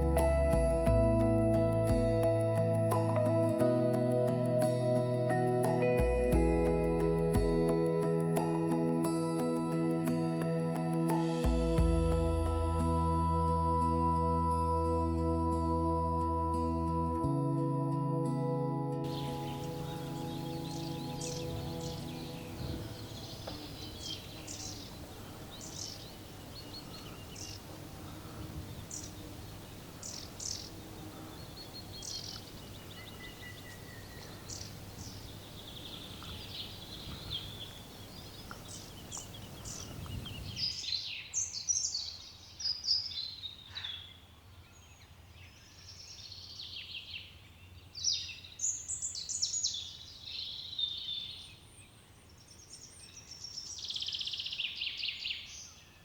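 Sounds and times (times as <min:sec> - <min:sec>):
songbirds chirping and trilling: 0:19.0 - 0:56.0.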